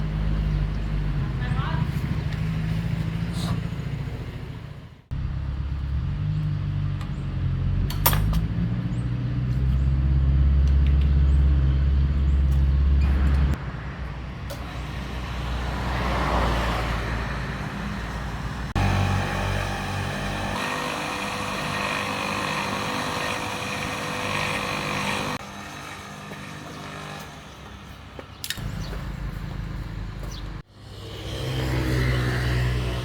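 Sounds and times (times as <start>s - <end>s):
water pump machine humming: 14.5s - 27.8s.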